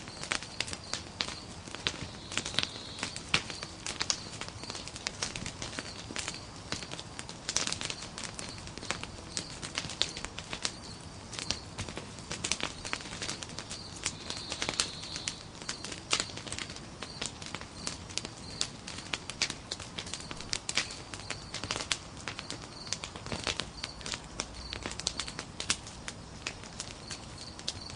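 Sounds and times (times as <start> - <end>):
faint steady hiss: 0.0 - 27.9
log fire crackling: 0.0 - 27.9.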